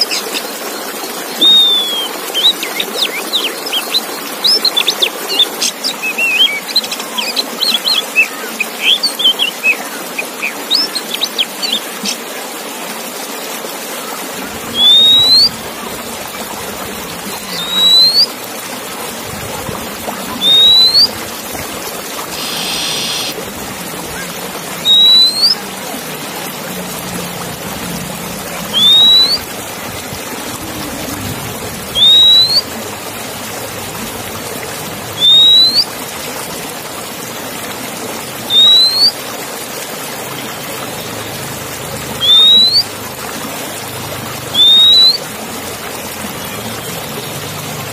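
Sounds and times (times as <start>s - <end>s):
songbird chirps: 1.3s - 12.2s, 14.7s - 15.7s, 17.2s - 18.4s, 20.1s - 21.2s, 24.1s - 26.0s, 28.5s - 29.5s, 32.0s - 32.7s, 42.2s - 42.9s
loud rising whistle: 1.4s - 2.1s, 14.7s - 15.5s, 17.6s - 18.3s, 20.4s - 21.1s, 24.8s - 25.6s, 28.7s - 29.4s, 31.9s - 32.6s, 35.2s - 35.9s, 38.5s - 39.1s, 42.2s - 42.8s, 44.5s - 45.2s.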